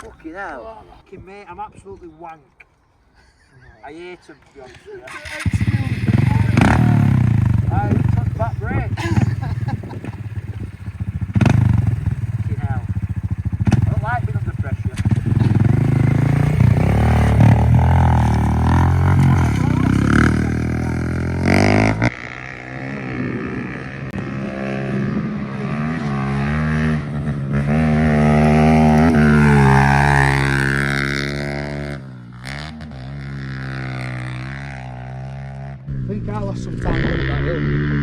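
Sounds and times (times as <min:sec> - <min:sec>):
pit bike engine revving: 0:05.1 - 0:38.0.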